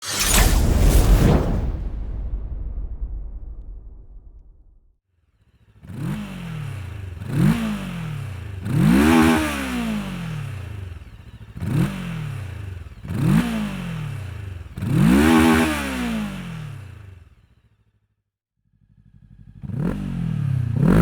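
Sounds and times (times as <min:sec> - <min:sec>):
motorcycle engine revving: 0:05.4 - 0:17.8, 0:18.7 - 0:21.0.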